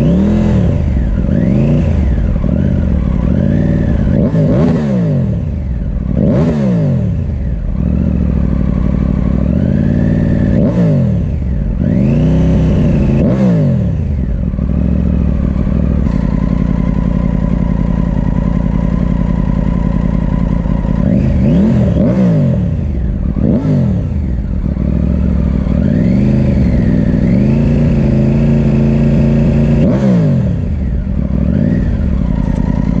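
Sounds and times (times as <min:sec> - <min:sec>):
motorcycle engine idling: 0:00.0 - 0:33.0
motorcycle engine revving: 0:00.0 - 0:33.0.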